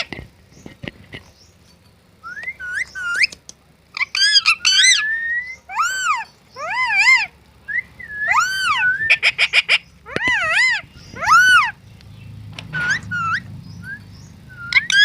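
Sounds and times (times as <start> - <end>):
parrot whistling and calling: 2.2 - 3.4, 4.0 - 11.8, 12.7 - 15.0.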